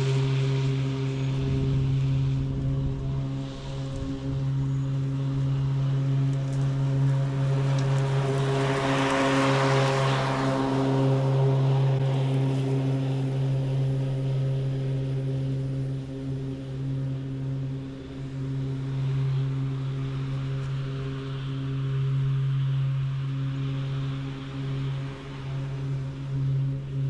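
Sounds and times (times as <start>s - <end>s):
mower blades hissing: 0.0s - 14.1s
electric mower hum: 0.0s - 27.0s.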